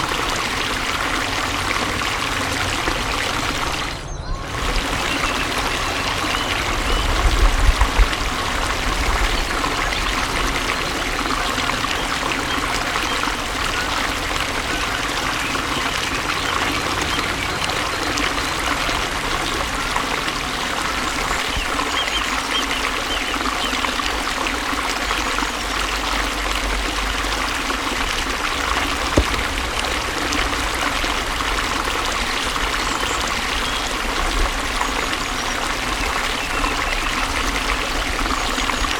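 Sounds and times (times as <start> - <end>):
water trickling and pouring: 0.0 - 38.9
low bumps: 29.0 - 31.8.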